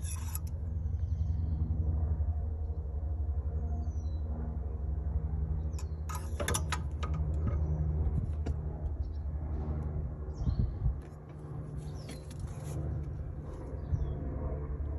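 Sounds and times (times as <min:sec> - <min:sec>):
generator starter cranking: 0:05.8 - 0:07.8.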